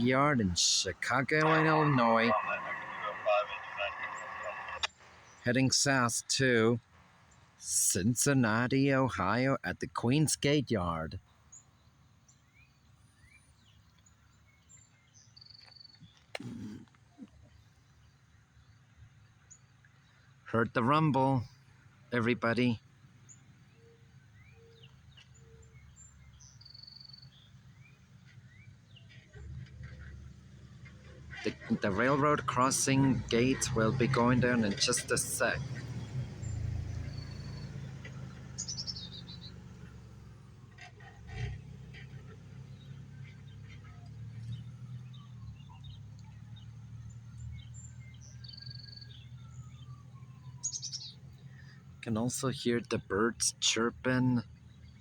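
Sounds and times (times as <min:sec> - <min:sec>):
birds chirping: 0:00.0 - 0:55.0
birds chirping and whistling: 0:35.2 - 0:40.0, 0:42.7 - 0:51.8
buzzy bird trill: 0:38.6 - 0:39.5.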